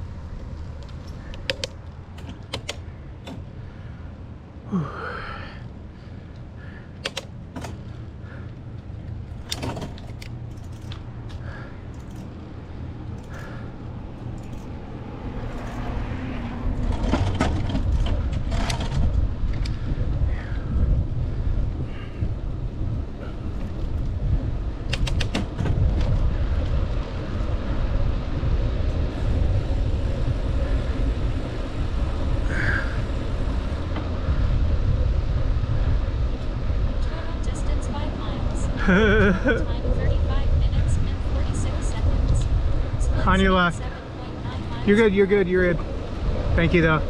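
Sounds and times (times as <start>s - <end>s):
wind and bicycle riding noise: 0.0s - 47.0s
sharp clicks and rattles: 0.8s - 3.5s, 6.3s - 8.0s, 9.0s - 15.9s, 16.8s - 19.8s, 24.8s - 27.5s.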